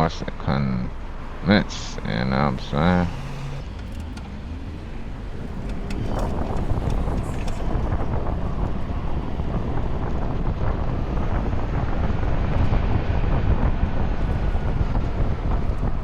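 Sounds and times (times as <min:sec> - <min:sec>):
wind buffeting microphone: 0:03.6 - 0:16.0.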